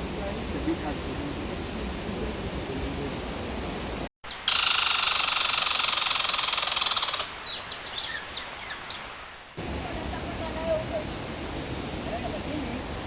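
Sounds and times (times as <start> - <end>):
falling water rushing: 0.0 - 4.1, 8.3 - 13.0
bird buzzing trill: 4.3 - 9.6
bird short high chirps: 6.2 - 9.6.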